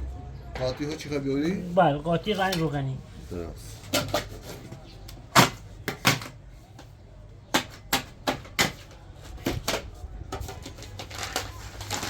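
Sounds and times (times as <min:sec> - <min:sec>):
hard objects clicking and knocking: 0:03.8 - 0:12.0.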